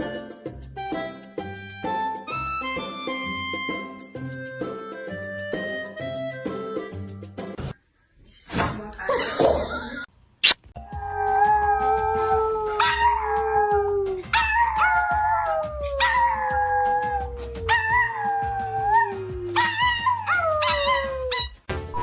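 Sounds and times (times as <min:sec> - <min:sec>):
dogs howling: 0:10.9 - 0:21.6.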